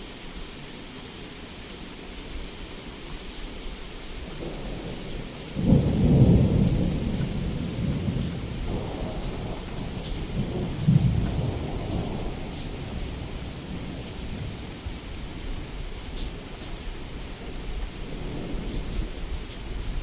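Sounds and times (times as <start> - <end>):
heavy rain falling: 0.0 - 20.0
thunderclap rumbling: 4.3 - 15.0, 18.0 - 19.1.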